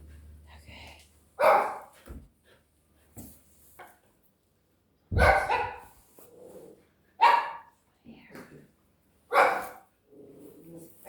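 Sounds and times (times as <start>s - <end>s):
dog barking: 1.4s - 1.9s, 5.1s - 6.0s, 7.2s - 7.7s, 9.3s - 9.8s.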